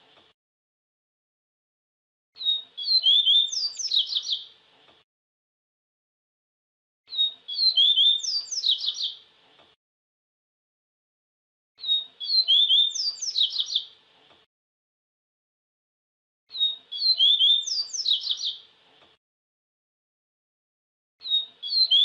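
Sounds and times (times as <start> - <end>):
bird singing high chirps: 2.4 - 4.5, 7.1 - 9.2, 11.8 - 13.9, 16.5 - 18.7, 21.2 - 22.0.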